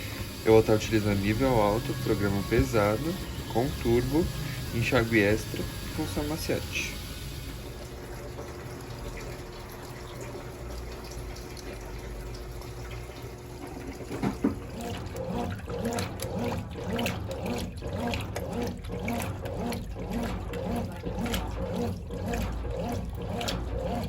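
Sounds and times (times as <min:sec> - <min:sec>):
rhythmic pulsing: 0:00.0 - 0:08.5
washing machine filling with water: 0:00.0 - 0:24.0.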